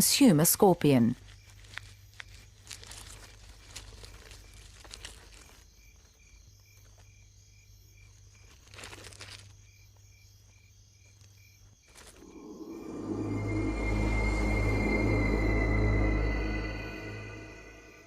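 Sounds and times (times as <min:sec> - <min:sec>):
faint insect chirping: 0:00.0 - 0:18.0
soundtrack music: 0:12.2 - 0:18.0.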